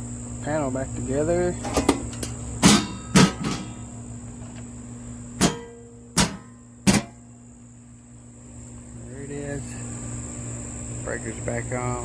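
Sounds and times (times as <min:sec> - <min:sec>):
breaker panel clicks and knocks: 0:01.6 - 0:03.8, 0:05.4 - 0:07.2.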